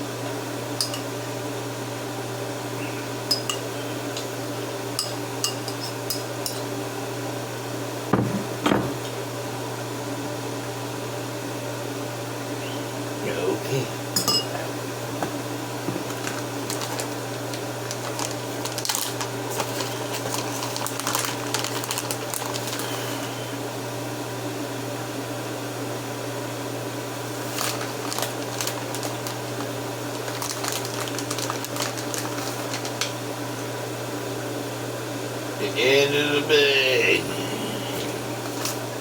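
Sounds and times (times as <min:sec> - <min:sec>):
appliance motor humming: 0:14.6 - 0:23.7, 0:27.4 - 0:33.7, 0:37.1 - 0:39.0.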